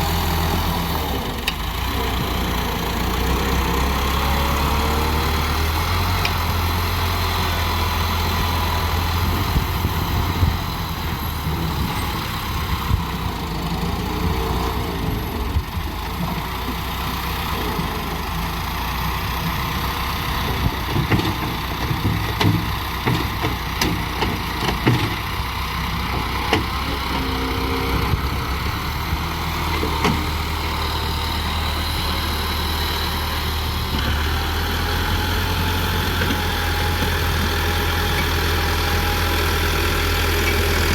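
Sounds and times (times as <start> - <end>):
diesel engine low rumble: 0.0 - 40.9
sharp knocks and clatter: 20.9 - 25.2.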